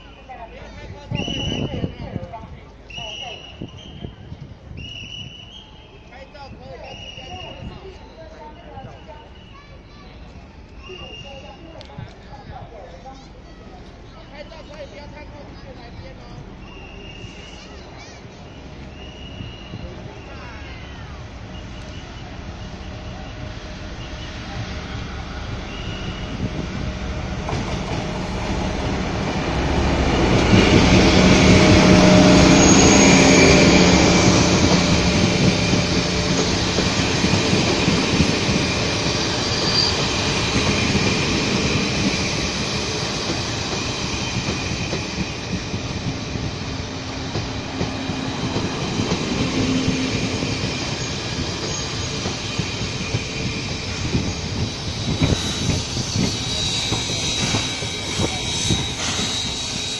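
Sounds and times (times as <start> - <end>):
train wheels rolling on rails: 1.0 - 59.9
diesel locomotive engine drone: 13.2 - 59.9
high wheel squeals: 16.6 - 26.7, 30.3 - 59.9.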